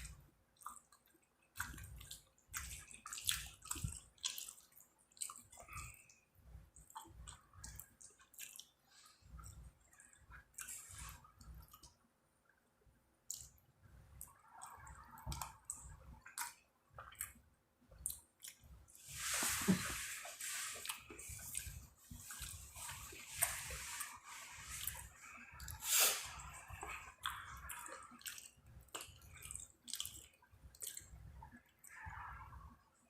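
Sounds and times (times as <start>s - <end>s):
close-up chewing: 0.6s - 12.0s, 18.0s - 18.7s, 20.8s - 32.0s.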